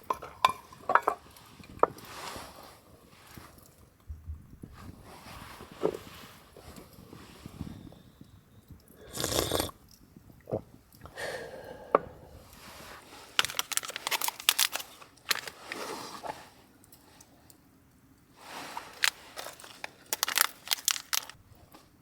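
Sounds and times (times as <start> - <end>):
scrape or crunch: 12.8 - 16.5, 18.4 - 21.4.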